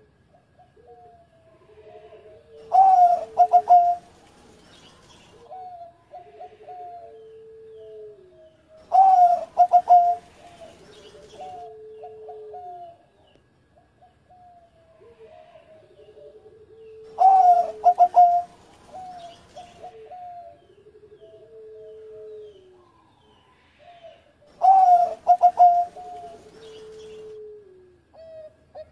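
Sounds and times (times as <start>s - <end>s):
dove cooing: 0.0s - 4.2s, 5.2s - 23.1s, 23.8s - 28.9s
soft trilling coos: 0.7s - 4.1s, 5.5s - 10.8s, 14.4s - 22.8s, 23.7s - 28.9s.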